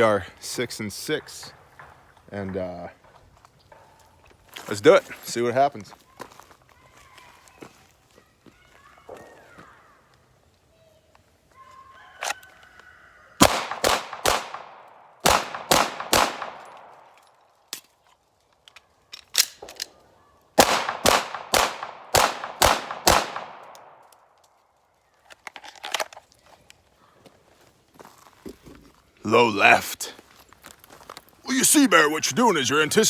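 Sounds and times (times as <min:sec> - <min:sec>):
pistol shots: 0:13.4 - 0:17.0, 0:20.6 - 0:24.0.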